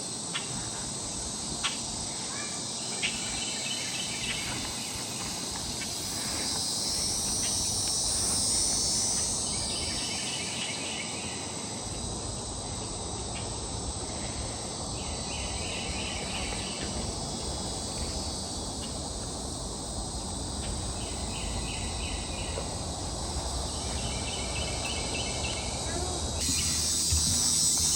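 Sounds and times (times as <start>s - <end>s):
insect chorus drone: 0.0s - 27.9s
rapid pulsing insect calls: 0.0s - 27.9s.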